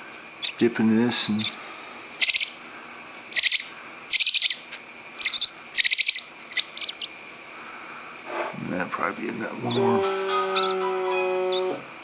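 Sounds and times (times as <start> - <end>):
baby bird begging chirps: 0.4 - 0.6, 1.3 - 1.6, 2.2 - 2.6, 3.3 - 7.2, 9.6 - 11.8.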